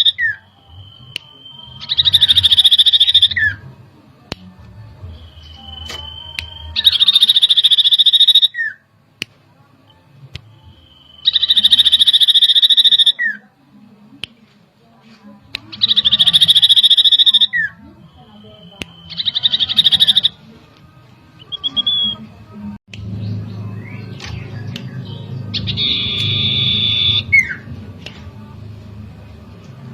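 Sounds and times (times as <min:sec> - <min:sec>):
bird singing whistles and trills: 0:00.0 - 0:03.6, 0:05.0 - 0:08.8, 0:10.6 - 0:13.4, 0:15.8 - 0:20.4, 0:21.4 - 0:22.3, 0:23.0 - 0:27.7.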